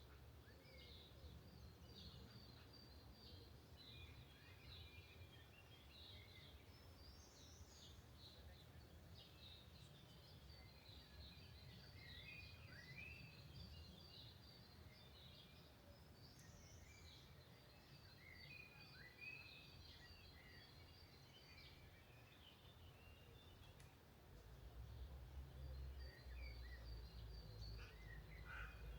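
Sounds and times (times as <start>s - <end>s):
songbirds chirping and whistling: 0.4s - 23.9s, 25.6s - 28.9s.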